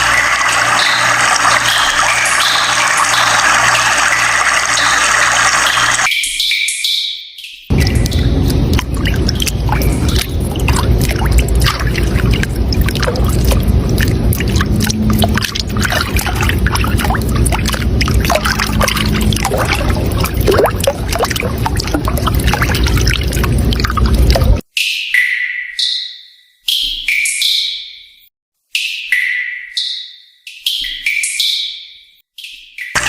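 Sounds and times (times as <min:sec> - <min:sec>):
water flowing and splashing: 0:00.0 - 0:06.1, 0:07.7 - 0:24.6.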